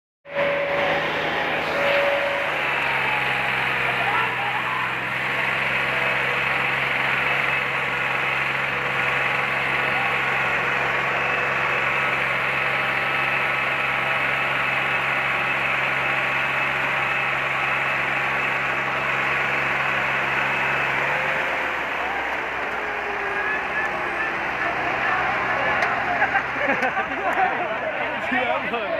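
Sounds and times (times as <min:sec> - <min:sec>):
tractor diesel engine straining: 0:00.3 - 0:28.9
voices in background: 0:22.9 - 0:28.9.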